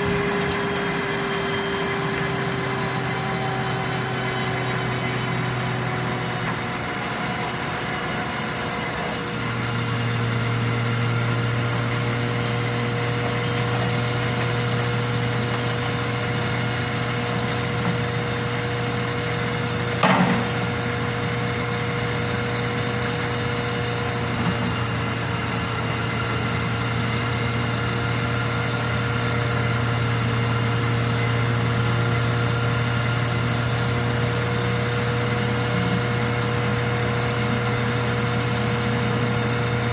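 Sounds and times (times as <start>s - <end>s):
engine running: 0.0s - 39.9s
sharp knock: 20.0s - 20.7s.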